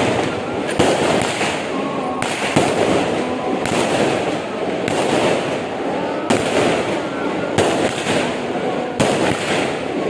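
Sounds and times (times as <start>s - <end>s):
fireworks and firecrackers crackling: 0.0s - 10.0s.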